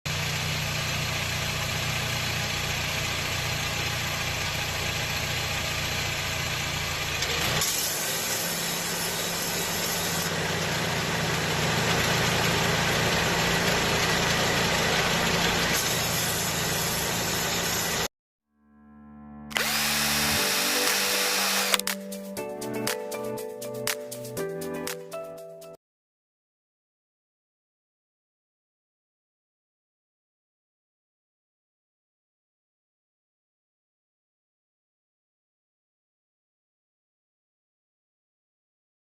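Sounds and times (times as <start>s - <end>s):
car engine idling: 0.1s - 7.6s, 8.4s - 18.1s
compressor clutch running noise: 0.4s - 18.1s, 19.5s - 21.8s.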